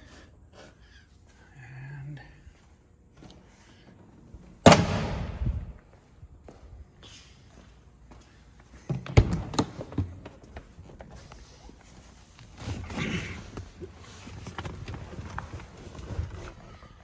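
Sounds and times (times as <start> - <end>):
footsteps: 2.4 - 12.9.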